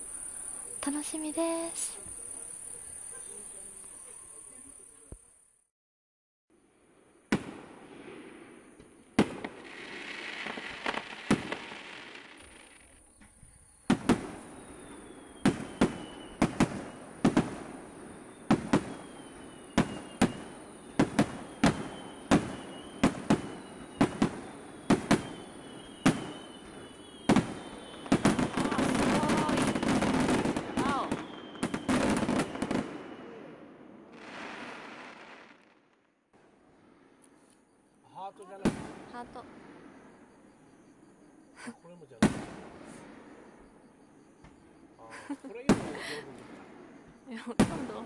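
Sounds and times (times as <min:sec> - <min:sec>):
crackling firework barrage: 0:06.6 - 0:37.2, 0:38.5 - 0:40.4, 0:42.2 - 0:43.8, 0:45.2 - 0:48.0
firework shells bursting with bangs: 0:07.3 - 0:37.5, 0:45.5 - 0:48.0
faint falling whistle: 0:14.4 - 0:17.0, 0:18.3 - 0:33.5.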